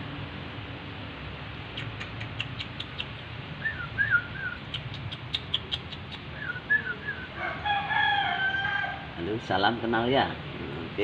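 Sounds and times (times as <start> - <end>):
long steady bird call: 1.6 - 9.2
bird clicking calls: 1.7 - 3.3, 4.1 - 6.9.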